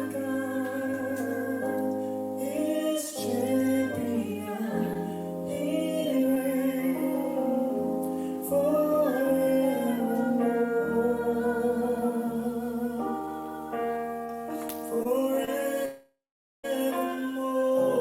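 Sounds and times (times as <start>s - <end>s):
person singing long notes: 0.0s - 14.0s.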